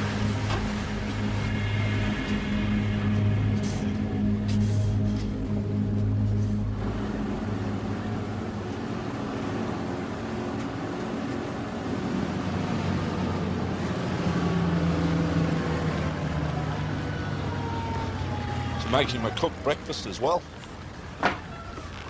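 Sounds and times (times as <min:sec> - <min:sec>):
motorboat engine running: 0:00.0 - 0:22.0.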